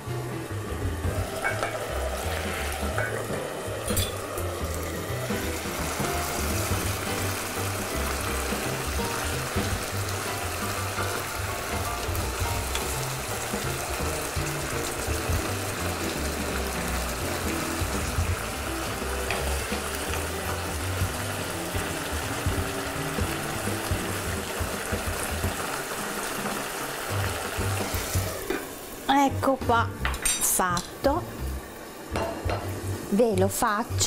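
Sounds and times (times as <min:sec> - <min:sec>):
background music: 0:00.0 - 0:28.5, 0:29.1 - 0:34.0
meat sizzling in a pan: 0:00.0 - 0:34.0.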